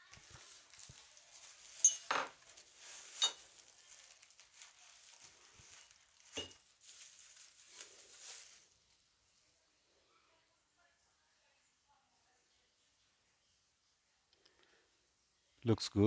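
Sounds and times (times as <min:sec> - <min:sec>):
soft rustling: 0:00.0 - 0:09.6
metallic clinks and taps: 0:01.8 - 0:02.3.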